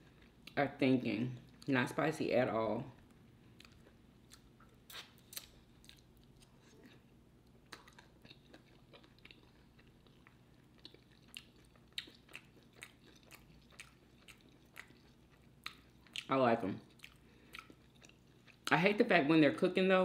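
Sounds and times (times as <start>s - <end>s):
chewing: 3.0s - 18.8s.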